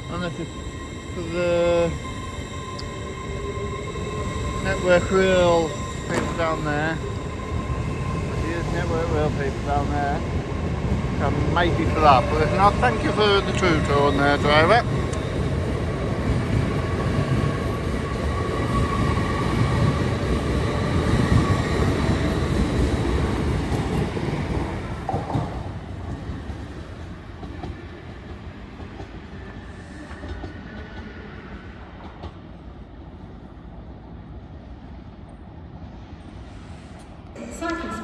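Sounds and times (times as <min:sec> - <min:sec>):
wheels rumbling over rails: 0:00.0 - 0:26.6
electric train passing: 0:00.0 - 0:38.0.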